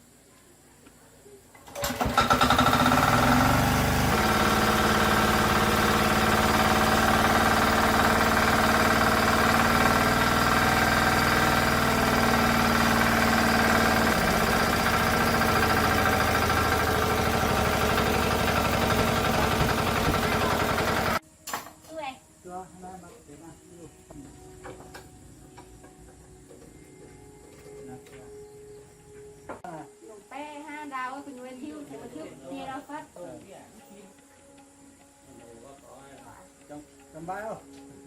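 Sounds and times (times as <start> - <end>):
small tractor engine running: 1.6 - 21.2.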